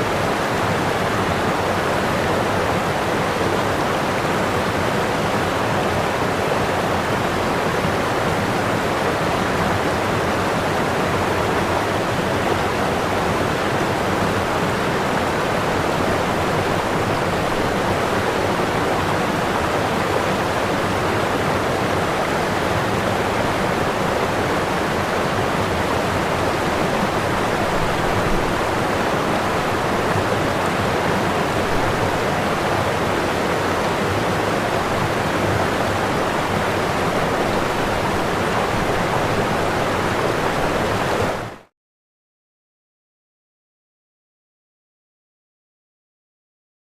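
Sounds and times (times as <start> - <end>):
waterfall rushing: 0.0 - 41.7.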